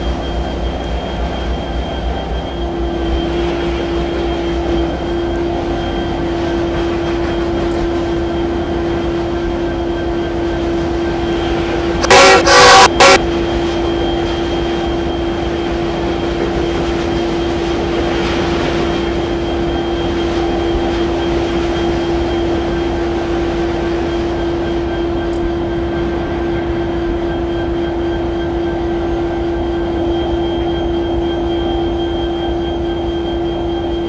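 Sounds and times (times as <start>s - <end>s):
train running drone: 0.0s - 34.0s
locomotive horn blast: 11.6s - 13.2s.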